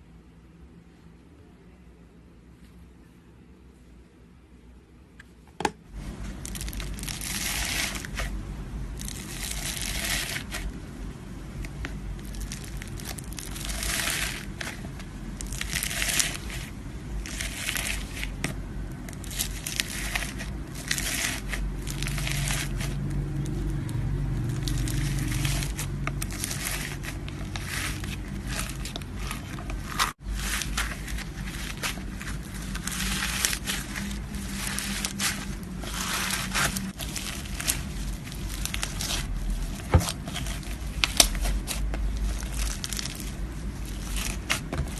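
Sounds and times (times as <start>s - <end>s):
low steady hum: 0.0s - 44.9s.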